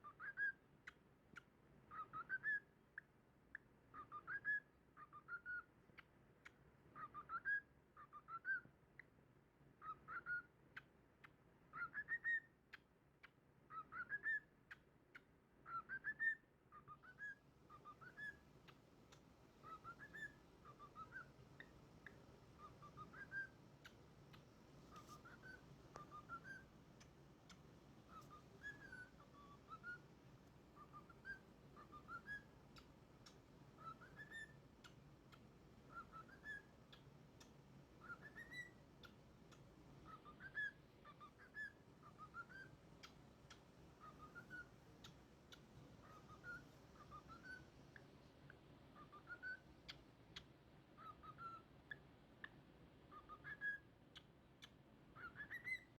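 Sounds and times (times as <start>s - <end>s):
cockatiel whistling: 0.0s - 0.6s, 1.9s - 2.6s, 3.9s - 5.7s, 7.0s - 8.6s, 9.8s - 10.5s, 11.7s - 12.5s, 13.7s - 14.4s, 15.6s - 18.4s, 19.6s - 24.0s, 24.9s - 26.7s, 27.5s - 30.1s, 30.8s - 35.0s, 35.9s - 39.2s, 40.0s - 47.7s, 49.0s - 52.0s, 53.1s - 56.0s
faint clicks: 23.8s - 28.7s, 32.7s - 33.4s, 36.4s - 37.6s, 45.0s - 46.6s, 47.9s - 48.6s.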